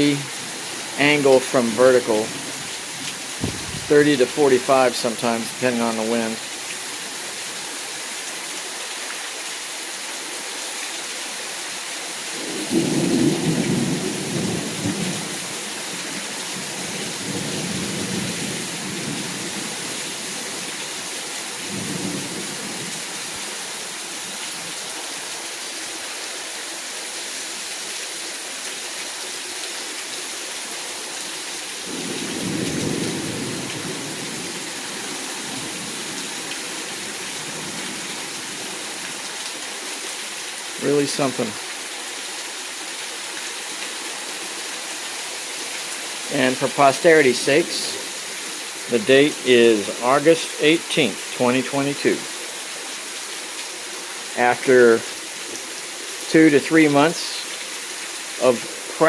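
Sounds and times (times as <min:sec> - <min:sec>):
steady rain falling: 0:00.0 - 0:59.0
thunder rumbling: 0:03.4 - 0:05.6, 0:12.4 - 0:15.4.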